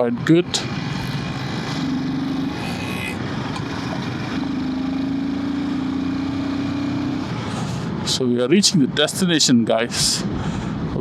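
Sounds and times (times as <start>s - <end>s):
motorcycle engine running: 0.0s - 7.6s
wind and road noise: 0.0s - 11.0s.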